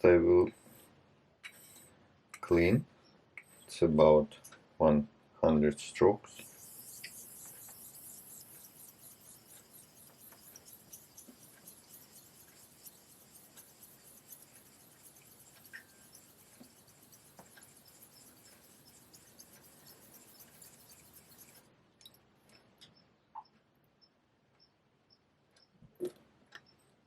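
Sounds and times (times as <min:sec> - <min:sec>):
razor scraping on whetstone: 0:06.4 - 0:21.6.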